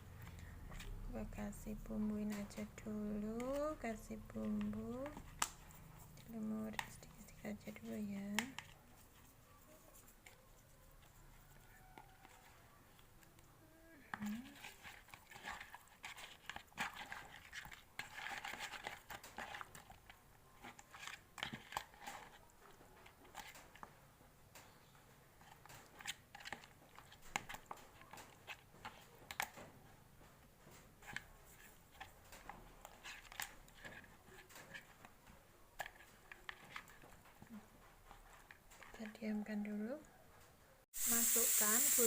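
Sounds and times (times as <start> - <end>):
hands rustling handling food: 0.0 - 23.9.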